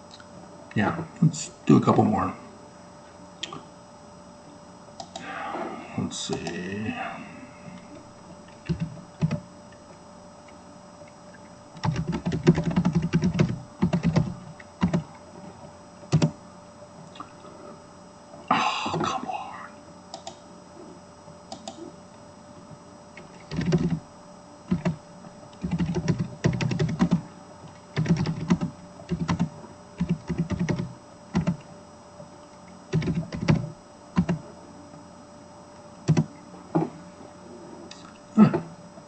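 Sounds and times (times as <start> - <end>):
keyboard typing: 8.6 - 9.4, 11.8 - 15.1, 16.1 - 16.3, 23.4 - 24.0, 24.7 - 25.0, 25.6 - 27.2, 28.0 - 31.6, 32.9 - 34.4, 36.1 - 36.3.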